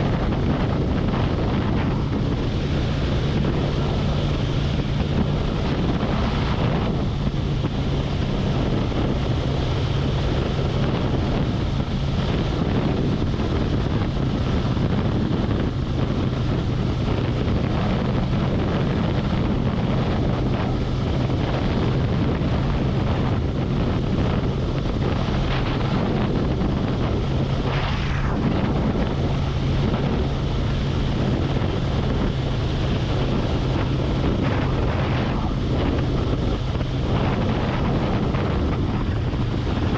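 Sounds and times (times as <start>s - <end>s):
motorcycle engine cruising: 0.0s - 39.9s
wind buffeting microphone: 0.0s - 39.9s.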